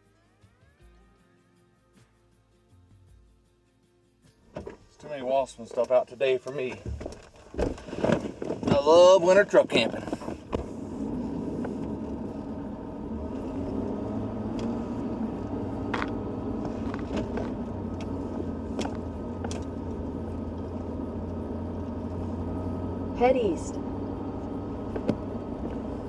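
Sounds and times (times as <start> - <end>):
road noise: 4.4 - 26.0
truck engine drone: 7.4 - 26.0.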